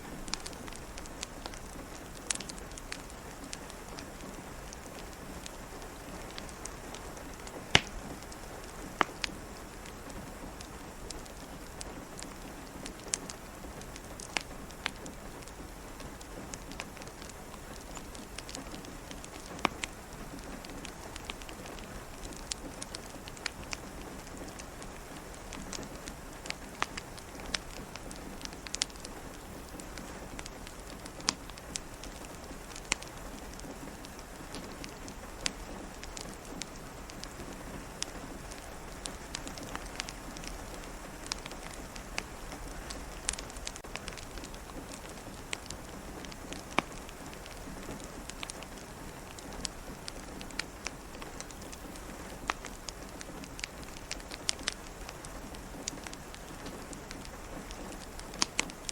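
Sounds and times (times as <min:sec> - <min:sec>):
fireplace crackling: 0:00.0 - 0:58.9
rain pattering on a window: 0:00.0 - 0:58.9.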